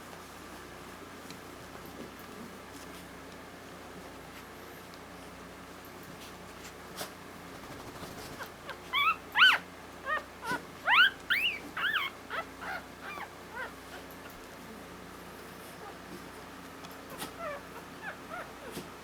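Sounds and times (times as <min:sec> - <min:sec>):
puppy whimpering: 0:08.4 - 0:14.9, 0:15.6 - 0:16.2, 0:17.1 - 0:19.0.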